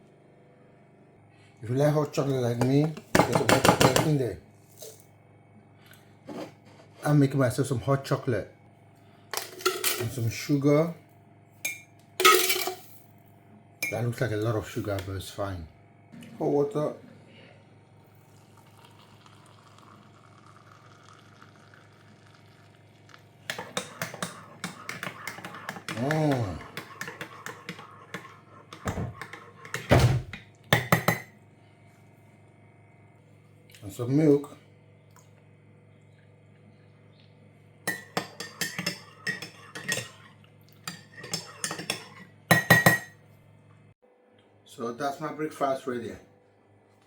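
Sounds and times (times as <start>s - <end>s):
hot water pouring into mug: 18.0s - 28.4s
spoon clinking against mug: 23.5s - 29.9s, 30.8s - 31.3s, 37.9s - 43.1s.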